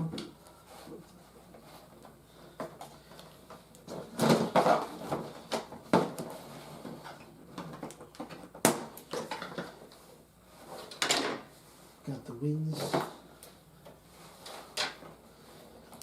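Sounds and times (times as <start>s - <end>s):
plastic parts rustling and clacking: 3.8s - 10.0s.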